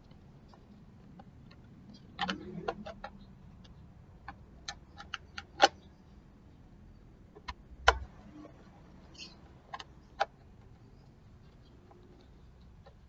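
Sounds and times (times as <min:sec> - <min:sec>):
clicks of plastic parts: 0:00.0 - 0:05.8.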